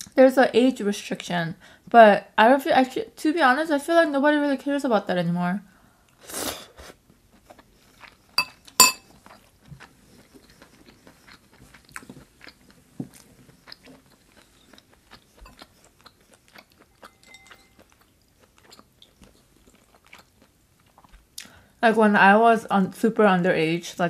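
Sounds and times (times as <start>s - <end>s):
person chewing food: 7.3s - 21.6s.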